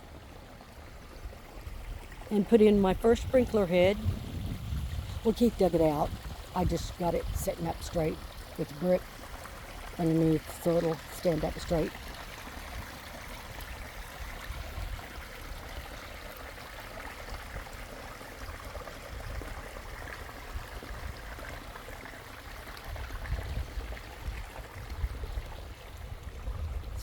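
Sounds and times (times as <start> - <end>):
waterfall splashing over stones: 3.2 - 26.2
low rumble: 3.7 - 5.2.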